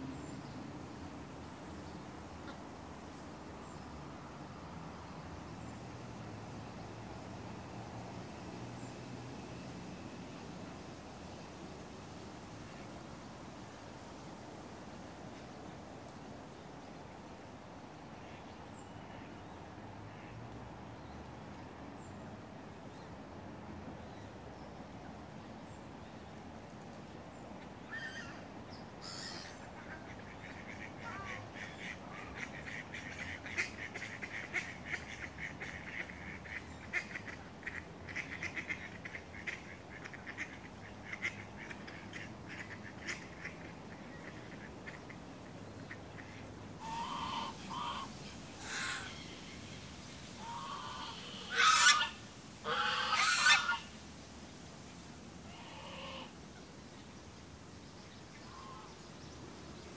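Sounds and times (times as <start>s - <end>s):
birds chattering calls: 27.9s - 53.9s, 58.0s - 59.9s.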